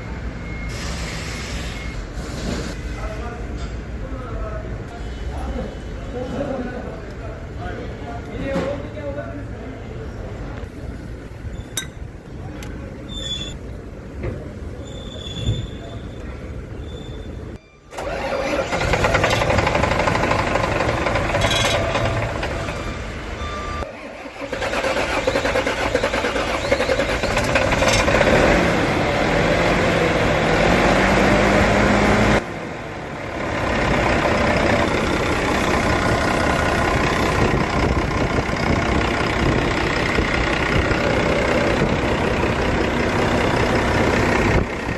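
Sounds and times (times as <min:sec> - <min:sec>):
diesel bus engine running: 0:17.9 - 0:44.9.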